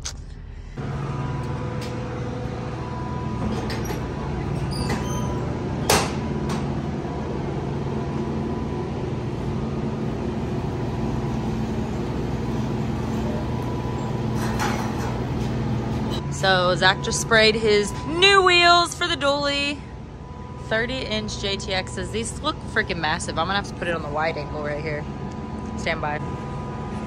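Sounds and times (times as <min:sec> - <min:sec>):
motor humming steadily: 0:00.7 - 0:27.0.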